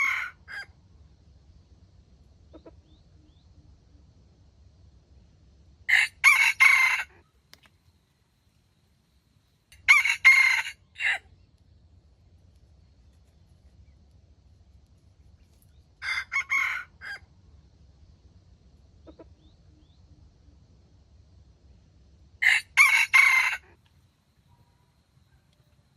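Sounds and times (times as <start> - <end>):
rooster crowing: 0.0 - 0.7, 5.9 - 7.2, 9.7 - 11.3, 16.0 - 17.3, 22.4 - 23.8.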